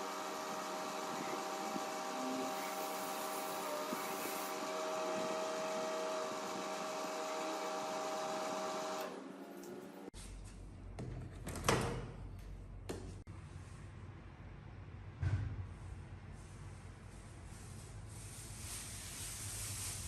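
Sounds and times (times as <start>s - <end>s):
microwave oven humming: 0.0s - 9.5s
fan whir: 0.0s - 10.1s.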